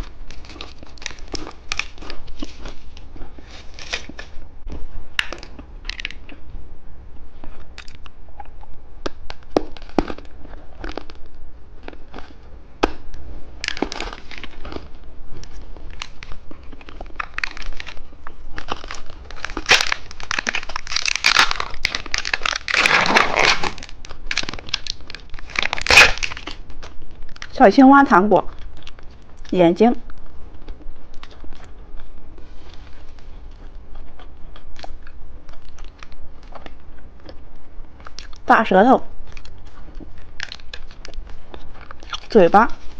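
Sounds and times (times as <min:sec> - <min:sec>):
plastic wrapper crinkling: 0:00.0 - 0:04.4, 0:05.2 - 0:06.3, 0:09.1 - 0:27.8, 0:39.2 - 0:42.9.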